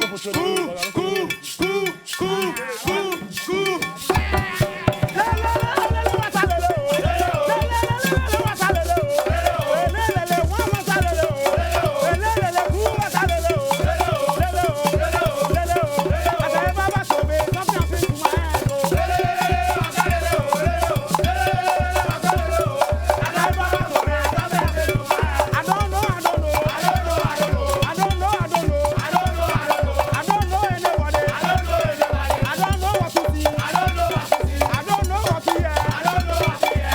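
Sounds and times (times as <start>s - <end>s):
rattling percussion: 0.0s - 36.9s
wavering melody line: 4.0s - 10.9s
upbeat band music: 4.2s - 6.6s.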